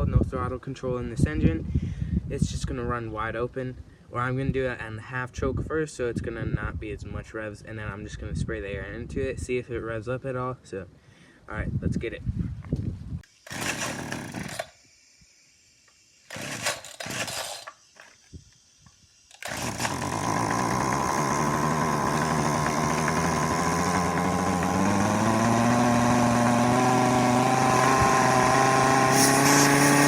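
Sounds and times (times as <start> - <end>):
lawn mower engine starting and revving: 13.3 - 14.8, 16.3 - 18.2, 19.3 - 30.0.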